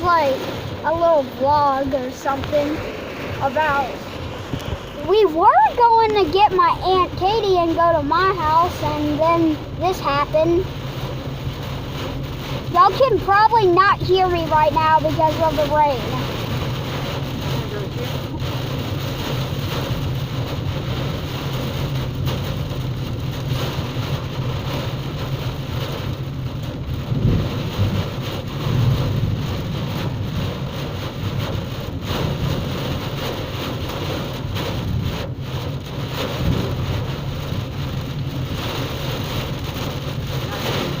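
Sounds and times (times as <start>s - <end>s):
heavy rain pouring: 0.0s - 41.0s
low rumbles: 0.0s - 41.0s.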